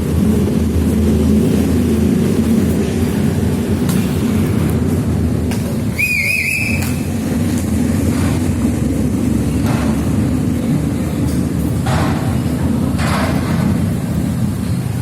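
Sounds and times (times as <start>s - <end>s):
heavy engines rumbling: 0.0s - 15.0s
warbling whistle blast: 5.9s - 7.1s.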